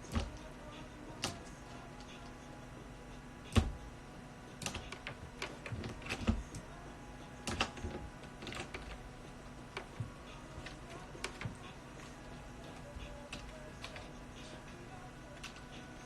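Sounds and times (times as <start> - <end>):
computer keyboard and mouse clicks: 1.2 - 2.3, 3.5 - 3.8, 4.6 - 6.7, 7.4 - 9.1, 9.7 - 14.6, 15.3 - 15.9.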